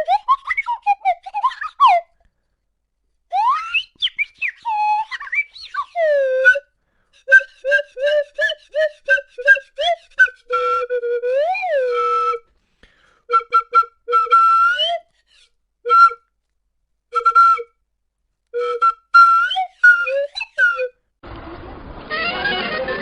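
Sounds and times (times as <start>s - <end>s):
flute-like whistled notes: 0.0s - 2.2s, 3.3s - 12.5s, 13.3s - 16.3s, 17.1s - 17.8s, 18.6s - 21.0s.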